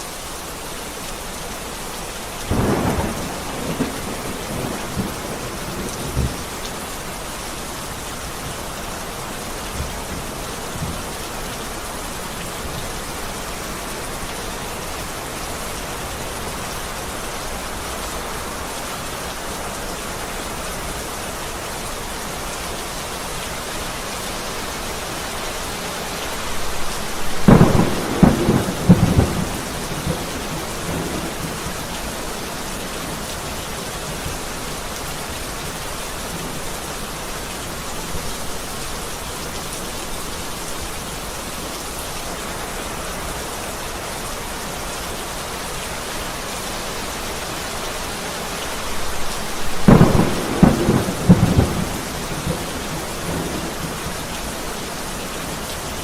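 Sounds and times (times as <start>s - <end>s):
heavy rain falling: 0.0s - 56.0s
thunderclap: 2.5s - 6.5s, 26.6s - 31.7s, 48.9s - 54.0s.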